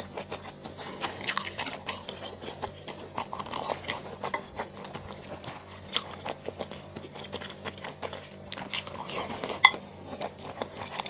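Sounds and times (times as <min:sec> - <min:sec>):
chewing and crunching food: 0:00.0 - 0:11.0
faint low hum: 0:00.0 - 0:11.0.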